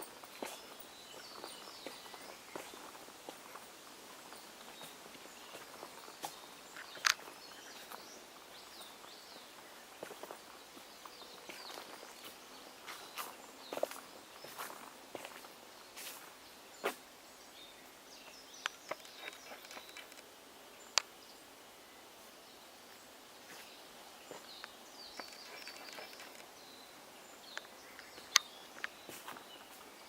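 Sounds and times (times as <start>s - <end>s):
sharp clicks: 18.6s - 20.3s, 24.6s - 26.5s
faint bird calls: 20.8s - 30.0s.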